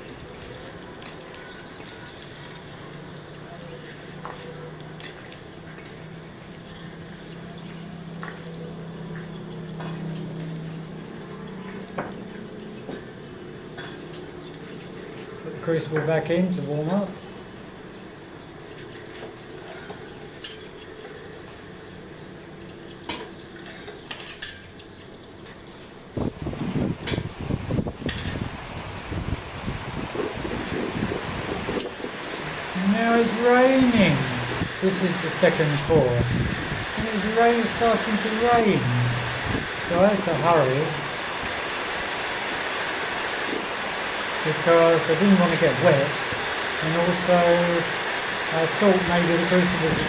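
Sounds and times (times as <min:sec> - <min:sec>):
faint steady hum: 0:00.0 - 0:50.0
electric blower hum: 0:30.0 - 0:41.8.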